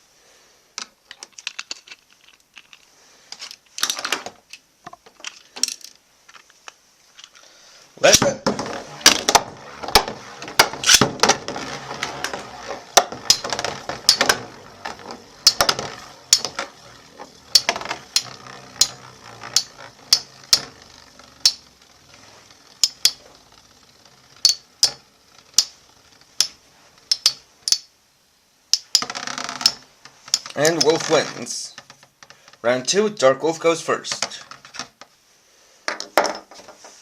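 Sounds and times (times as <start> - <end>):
spinning tops whirring: 8.0 - 27.9, 28.8 - 31.8
metallic clacks of colliding tops: 26.4 - 27.9.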